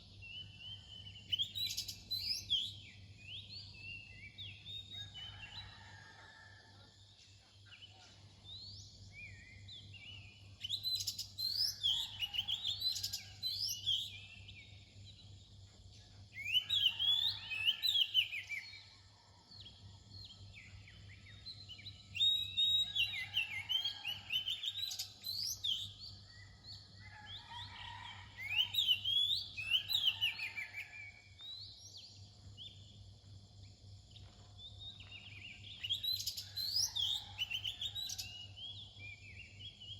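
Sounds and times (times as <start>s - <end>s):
bird whistled song: 22.2s - 23.6s.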